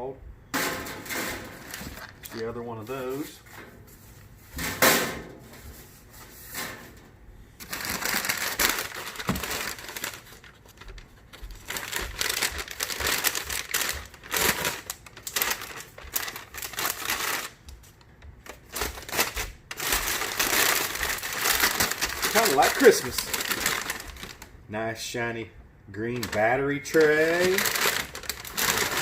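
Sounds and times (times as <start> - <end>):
packing material crumpling and tearing: 7.6 - 24.5, 26.1 - 29.0.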